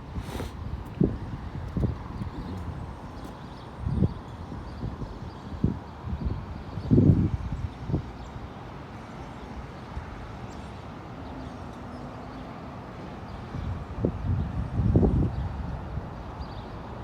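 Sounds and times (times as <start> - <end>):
outdoor background rumble: 0.0 - 4.1
wind buffeting microphone: 0.0 - 8.3, 13.5 - 16.5.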